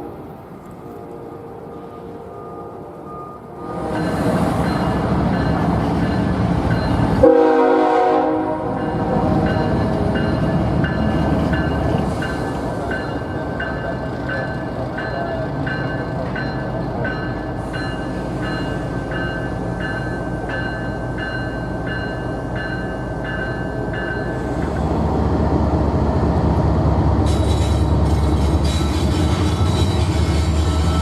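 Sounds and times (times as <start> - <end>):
train rumbling past: 0.0 - 31.0
train horn blast: 7.2 - 9.4.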